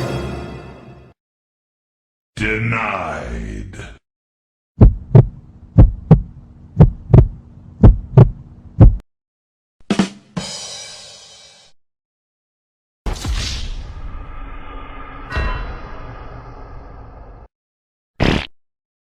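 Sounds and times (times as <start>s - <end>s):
heartbeat thumps: 4.8s - 9.0s
sharp hit: 13.1s - 17.5s.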